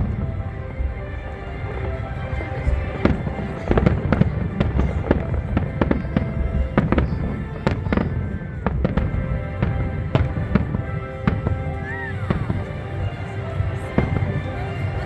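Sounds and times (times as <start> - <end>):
music playing: 0.0 - 15.0
fireworks bursting: 1.6 - 12.6.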